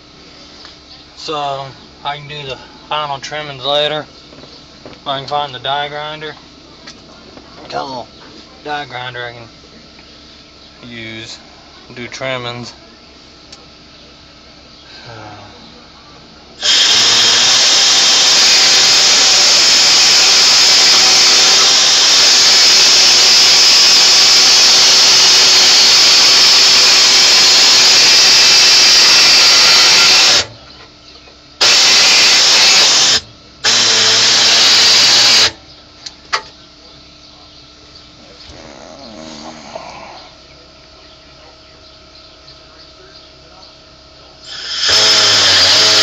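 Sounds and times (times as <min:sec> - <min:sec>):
air die grinder running: 0:16.6 - 0:30.6, 0:31.6 - 0:35.6, 0:44.4 - 0:46.0.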